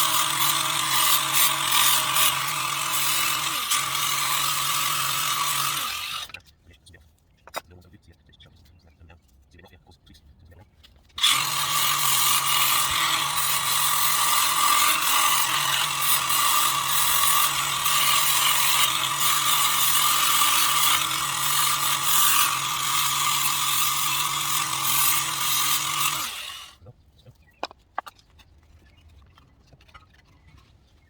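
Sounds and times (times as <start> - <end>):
power tool rattling and grinding: 0.0 - 6.4, 11.2 - 26.8.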